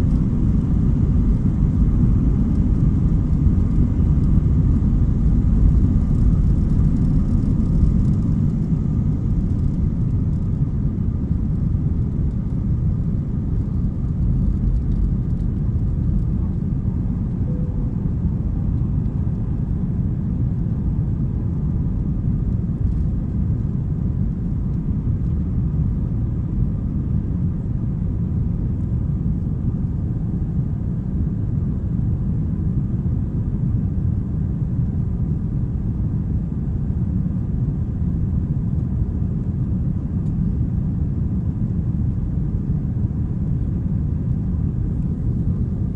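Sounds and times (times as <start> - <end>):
jet engines rumbling: 0.0 - 24.1
high engine tone: 17.4 - 18.8.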